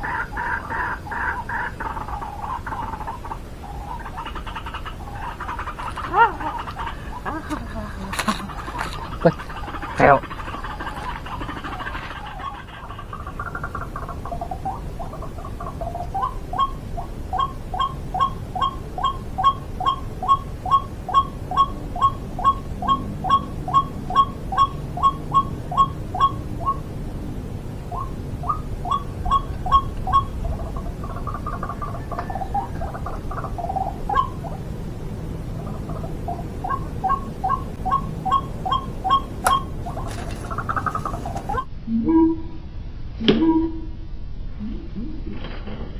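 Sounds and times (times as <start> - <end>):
waterhen repeated calls: 0.0 - 27.0, 27.8 - 42.4.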